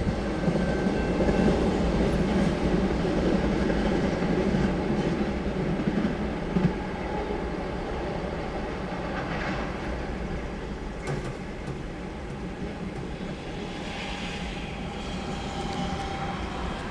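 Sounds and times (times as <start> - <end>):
freight train wheels clacking: 9.0 - 16.9.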